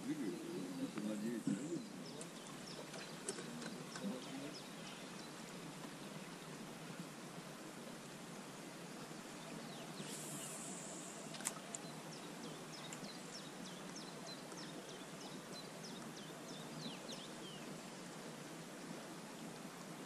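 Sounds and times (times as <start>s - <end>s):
outdoor background noise: 0.0s - 20.0s
songbird song: 0.0s - 20.0s
brief high hiss: 10.0s - 11.5s.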